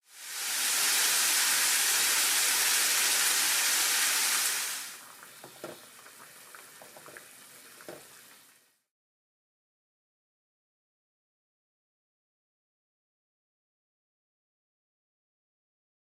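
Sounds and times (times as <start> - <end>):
food sizzling in a pan: 0.0 - 8.8
small pops of frying: 0.1 - 8.7.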